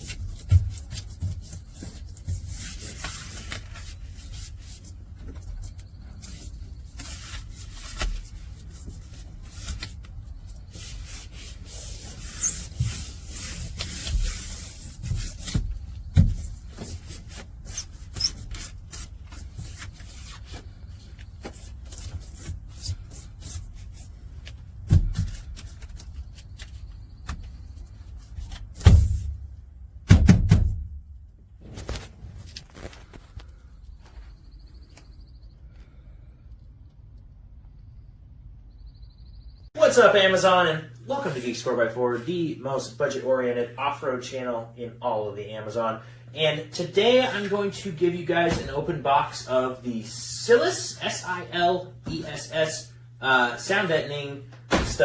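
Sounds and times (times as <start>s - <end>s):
rubbing and scraping: 0.0s - 29.3s.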